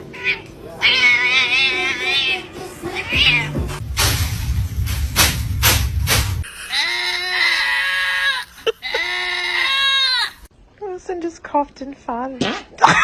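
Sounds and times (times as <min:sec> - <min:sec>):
cat meowing: 0:00.0 - 0:03.6
low rumbling noise: 0:03.7 - 0:06.5
sharp knocks: 0:03.9 - 0:06.4.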